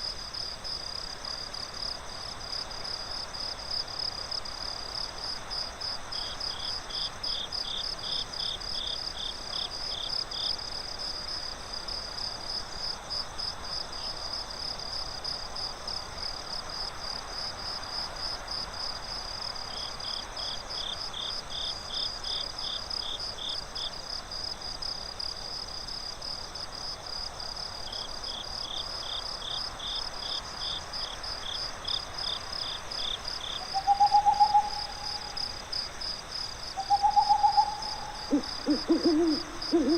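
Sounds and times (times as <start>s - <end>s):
crickets chirping: 0.0s - 39.9s
lower cricket trilling: 27.9s - 39.9s
owl hooting: 33.6s - 35.3s, 36.8s - 39.9s.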